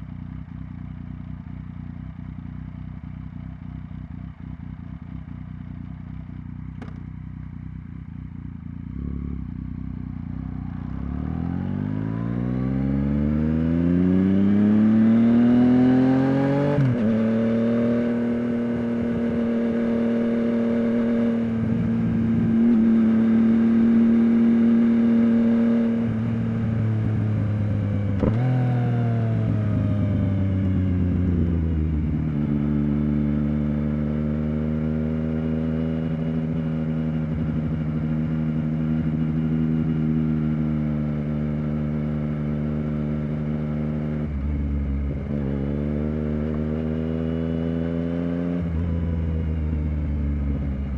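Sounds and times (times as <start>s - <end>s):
motorcycle engine running under load: 0.0s - 50.9s.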